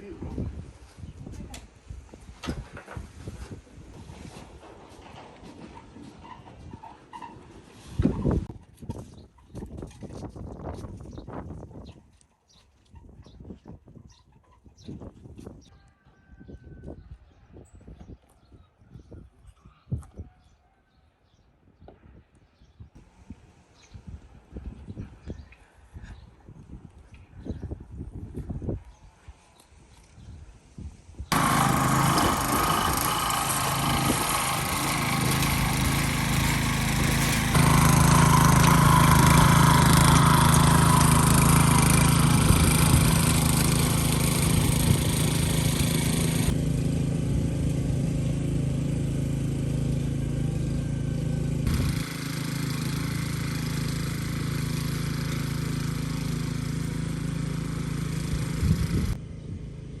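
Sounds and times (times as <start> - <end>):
farm machine engine under load: 31.3 - 60.0.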